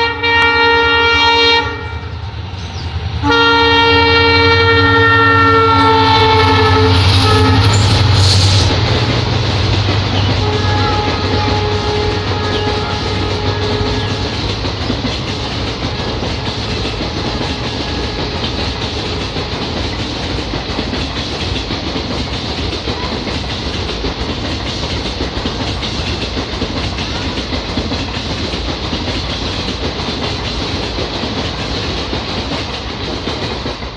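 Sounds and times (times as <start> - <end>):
steady rushing noise: 6.0 - 33.9
wheels clattering over rail joints: 7.1 - 33.9.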